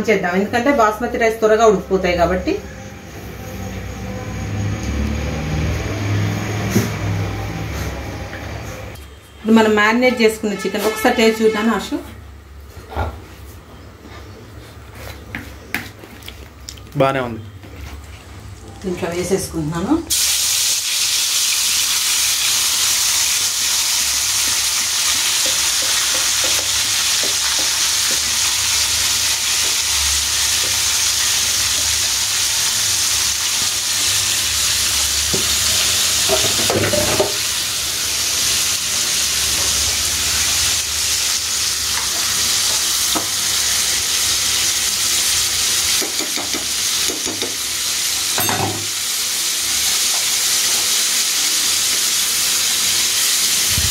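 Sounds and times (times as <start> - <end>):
chicken sizzling in a pan: 20.1 - 53.9.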